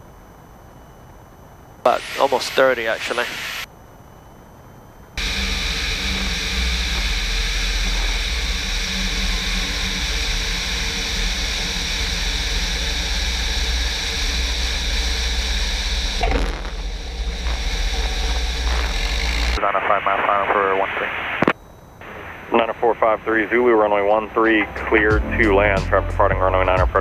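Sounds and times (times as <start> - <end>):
aircraft piston engine droning: 1.8 - 3.7, 5.1 - 21.1, 21.8 - 27.0
rushing airflow hiss: 1.9 - 3.7.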